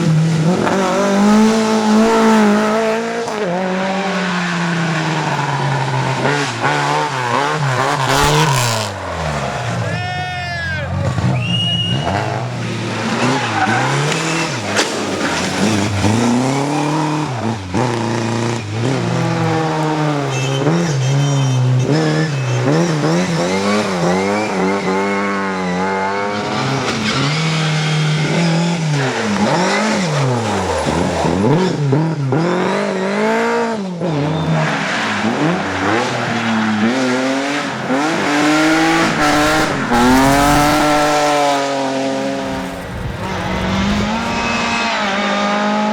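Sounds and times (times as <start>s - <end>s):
car engine revving hard: 0.0s - 10.0s, 11.0s - 45.9s
tyres squealing: 7.3s - 31.7s, 34.5s - 45.3s.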